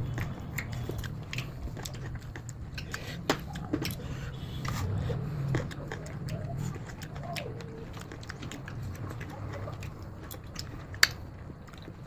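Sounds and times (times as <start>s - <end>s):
person chewing crisp fruit: 0.0s - 12.0s.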